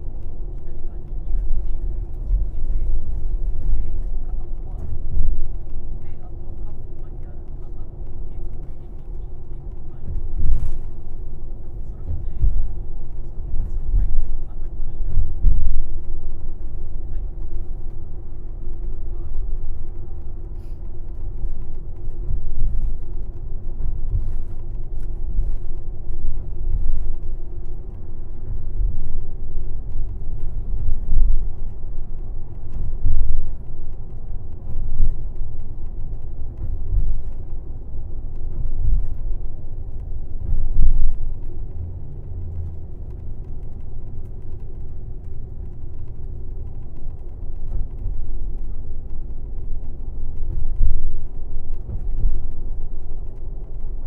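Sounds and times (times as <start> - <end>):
bus engine and road rumble: 0.0 - 54.0
faint steady hum: 0.0 - 54.0.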